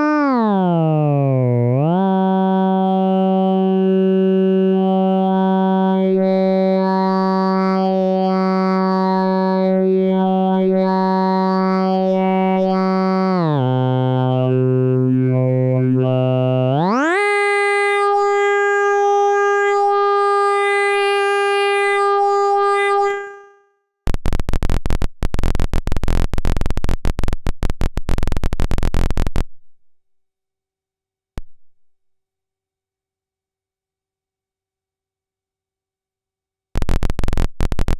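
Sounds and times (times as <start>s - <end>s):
synthesizer oscillator tone: 0.0s - 23.5s
glitchy clicking: 24.1s - 29.5s, 36.8s - 37.9s.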